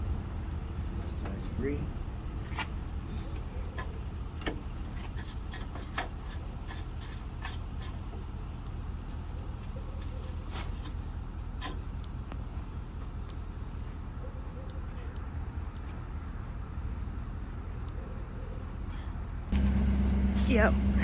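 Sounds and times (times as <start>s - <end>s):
engine humming: 18.7s - 21.0s.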